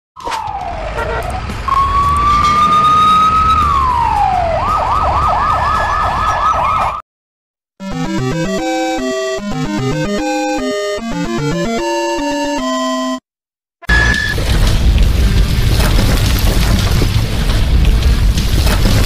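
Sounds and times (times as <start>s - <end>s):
electronic police siren: 0.2s - 7.0s, 7.8s - 13.2s, 13.8s - 14.4s
music: 7.8s - 13.2s
low rumble: 14.4s - 19.0s.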